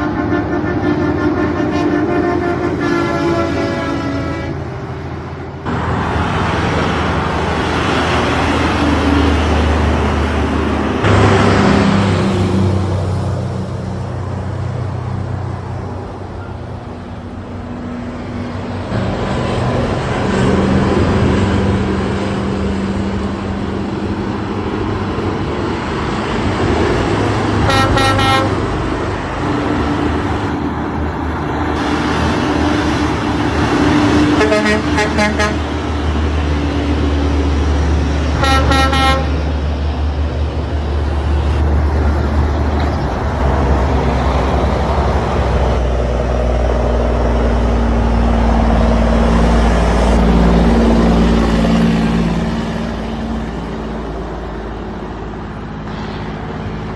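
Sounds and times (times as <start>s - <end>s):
vehicle horn toots: 0.0s - 4.7s, 27.6s - 28.7s, 34.2s - 35.7s, 38.3s - 39.5s
heavy truck engine running: 0.0s - 56.9s
road noise: 0.0s - 56.9s.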